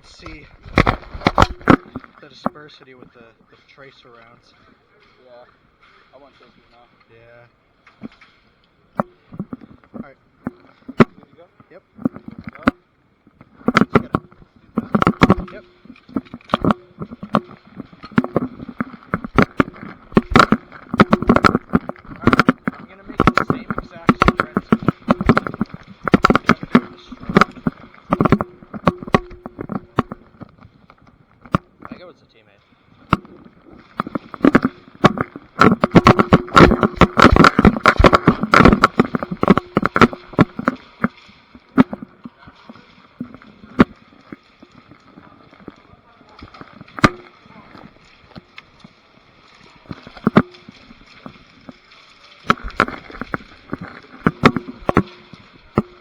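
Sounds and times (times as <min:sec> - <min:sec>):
gear knocking: 0:13.4 - 0:32.0, 0:33.0 - 0:48.8, 0:49.8 - 0:51.8, 0:52.5 - 0:56.0
running footsteps: 0:13.4 - 0:32.0, 0:33.0 - 0:48.8.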